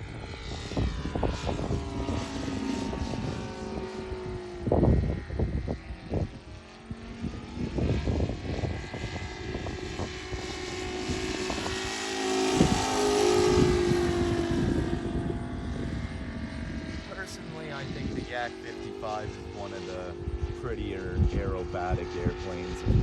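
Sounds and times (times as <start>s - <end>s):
model plane engine purring: 0.0s - 23.0s.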